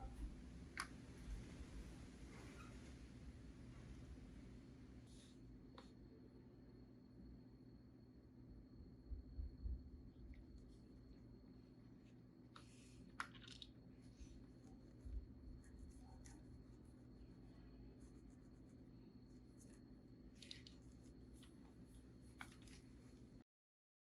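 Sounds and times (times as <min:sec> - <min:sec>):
steady low hum: 0:00.0 - 0:23.4
soft scratching and clicking: 0:12.5 - 0:23.4.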